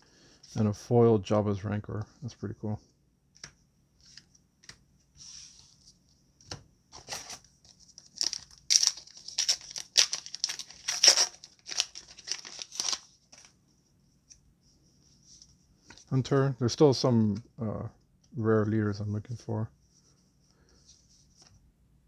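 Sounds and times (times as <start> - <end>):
foil wrapper tearing and crinkling: 8.0 - 13.5.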